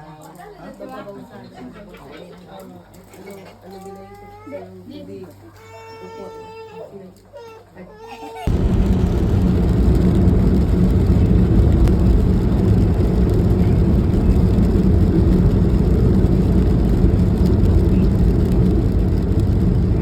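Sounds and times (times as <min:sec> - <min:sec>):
low hum: 0:08.5 - 0:20.0
vehicle engine rumbling: 0:08.5 - 0:20.0.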